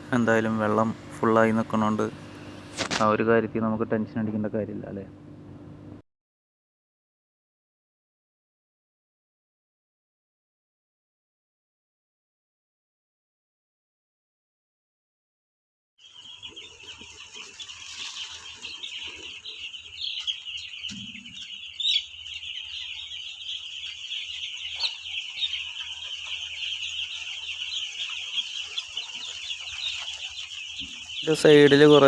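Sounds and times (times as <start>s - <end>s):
chicks peeping: 0.0s - 5.1s, 16.0s - 32.0s.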